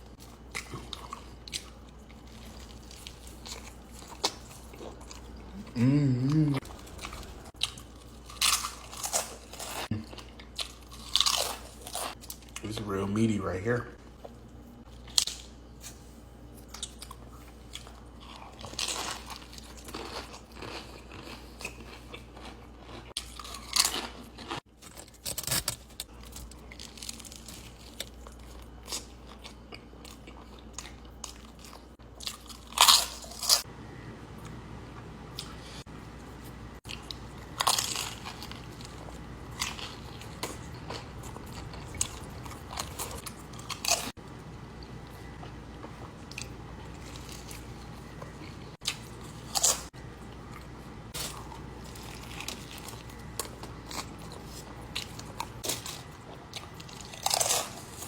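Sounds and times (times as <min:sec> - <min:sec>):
person biting and chewing: 0:00.4 - 0:12.6, 0:36.8 - 0:44.2.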